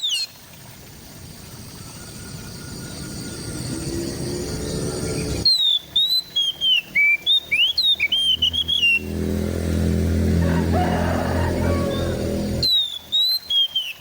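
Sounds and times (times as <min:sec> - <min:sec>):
low rising hum: 0:00.5 - 0:12.8
steady high whine: 0:00.6 - 0:05.5, 0:06.3 - 0:12.7
bird singing whistled notes: 0:01.8 - 0:09.1, 0:12.6 - 0:14.0.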